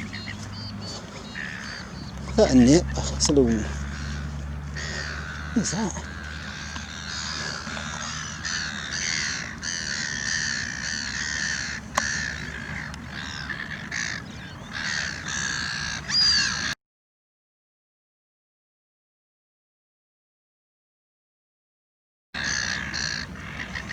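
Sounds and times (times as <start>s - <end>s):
flock of birds calling: 0.0s - 16.8s, 22.4s - 23.9s.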